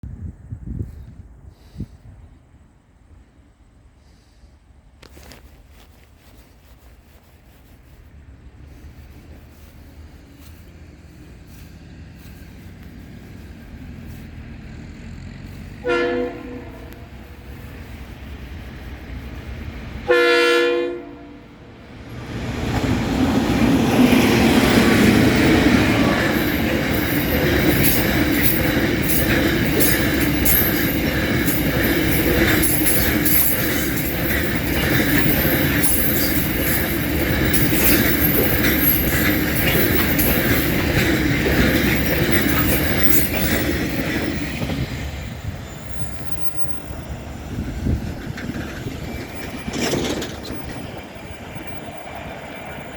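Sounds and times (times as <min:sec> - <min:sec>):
diesel locomotives passing: 0:00.5 - 0:52.9
train wheels clicking over rail joints: 0:04.0 - 0:20.1, 0:21.8 - 0:52.9
locomotive horn blast: 0:15.6 - 0:17.5, 0:20.0 - 0:21.6.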